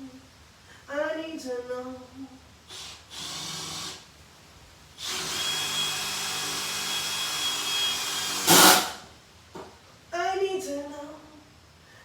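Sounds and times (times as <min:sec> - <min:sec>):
cordless impact driver running: 0:05.0 - 0:09.0.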